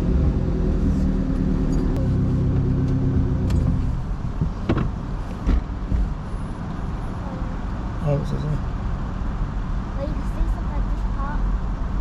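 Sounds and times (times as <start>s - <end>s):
car engine pulling away: 0.0s - 5.0s.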